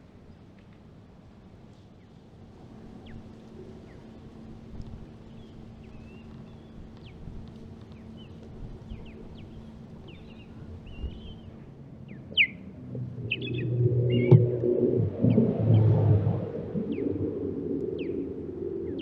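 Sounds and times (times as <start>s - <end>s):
low rumble: 10.7s - 19.0s
bird whistled calls: 12.1s - 14.5s.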